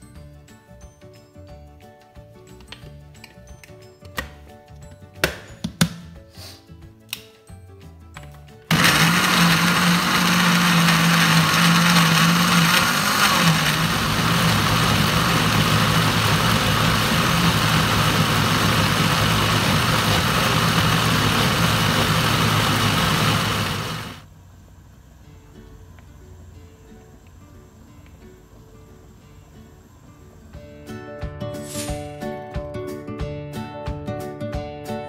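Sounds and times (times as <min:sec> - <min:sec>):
electric blender grinding: 0:08.7 - 0:24.2.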